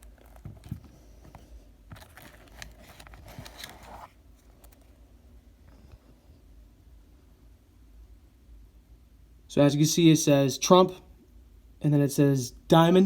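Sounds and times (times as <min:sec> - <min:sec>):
scratchy rustling: 0:00.0 - 0:04.9.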